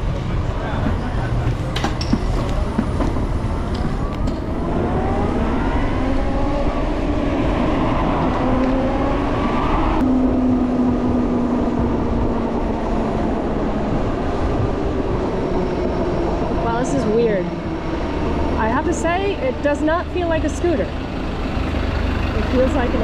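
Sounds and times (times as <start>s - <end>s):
wind rumble on microphone: 0.0s - 21.0s
electric motorcycle drivetrain whining: 1.8s - 16.6s.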